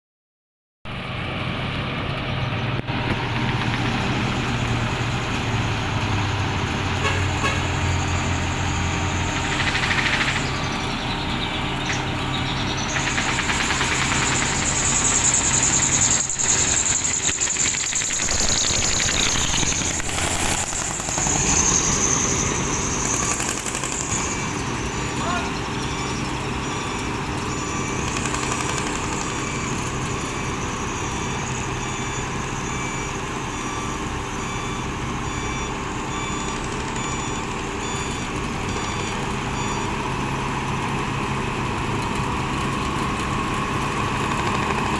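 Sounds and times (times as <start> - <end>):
diesel machinery engine hum: 0.9 - 44.9
grinding noise: 7.3 - 31.3
high steady whine: 7.4 - 35.6.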